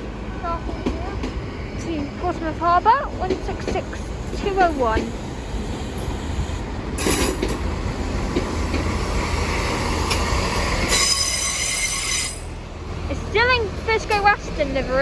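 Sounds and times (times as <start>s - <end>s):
train low rumble: 0.0s - 15.0s
high-pitched wheel squeal: 10.9s - 12.5s.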